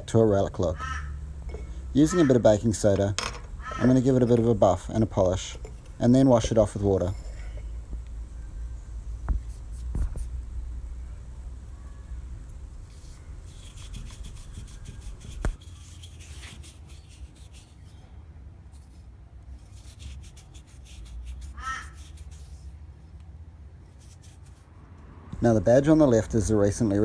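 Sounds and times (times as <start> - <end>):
low steady hum: 0.0 - 15.6
rubbing strokes on metal badge: 0.0 - 17.9, 19.7 - 22.6.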